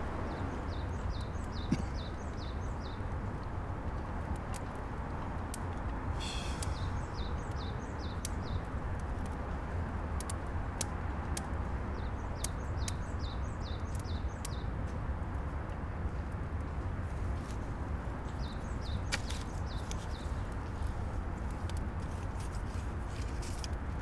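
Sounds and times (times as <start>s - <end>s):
low outdoor rumble: 0.0s - 24.0s
small birds chirping: 0.2s - 3.2s, 6.2s - 8.7s, 11.9s - 14.7s, 18.2s - 20.9s
brief hiss: 6.2s - 6.9s.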